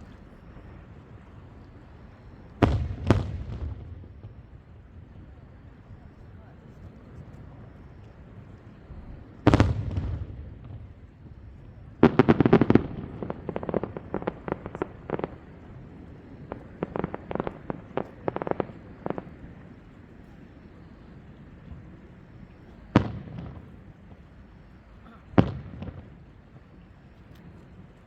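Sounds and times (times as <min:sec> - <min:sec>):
fireworks bursting: 0:00.0 - 0:06.0, 0:08.8 - 0:20.2, 0:22.8 - 0:24.4, 0:25.2 - 0:28.0.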